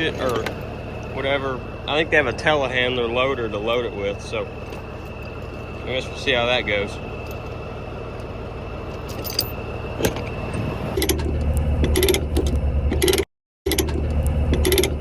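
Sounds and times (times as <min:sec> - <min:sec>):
diesel engine running: 0:00.0 - 0:15.0
metallic jingling and clinks: 0:09.1 - 0:09.6.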